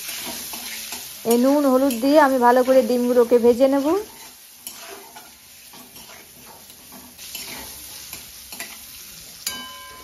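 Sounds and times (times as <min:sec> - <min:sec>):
eggs sizzling in hot oil: 0:00.0 - 0:10.0
metal spatula scraping a pan: 0:00.0 - 0:10.0
pan ringing from spatula strike: 0:09.4 - 0:10.0.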